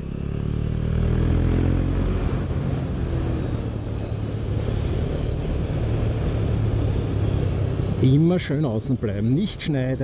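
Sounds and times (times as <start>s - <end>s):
motorcycle engine: 0.0s - 8.0s.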